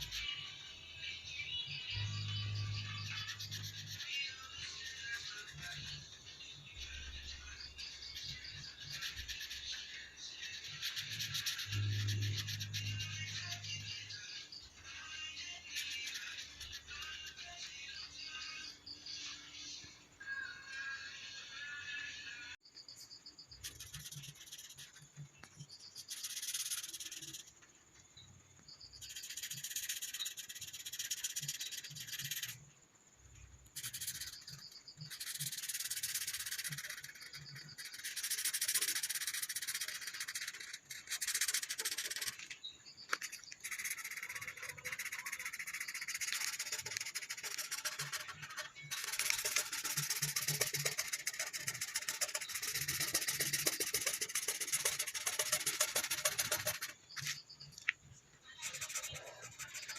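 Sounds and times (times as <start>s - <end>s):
colouring tool scratching on paper: 2.7s - 6.0s, 8.0s - 13.9s, 15.2s - 17.6s, 23.6s - 27.5s, 29.0s - 32.6s, 33.7s - 42.4s, 43.2s - 57.5s, 58.5s - 59.9s.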